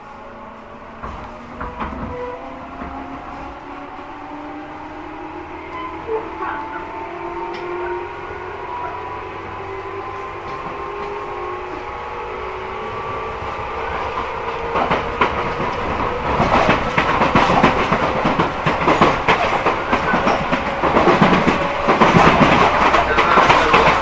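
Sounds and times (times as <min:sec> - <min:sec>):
train traction motors humming: 0:00.0 - 0:24.0
wheels on rail: 0:00.0 - 0:24.0
rail-joint clicks: 0:07.4 - 0:07.9, 0:14.0 - 0:24.0.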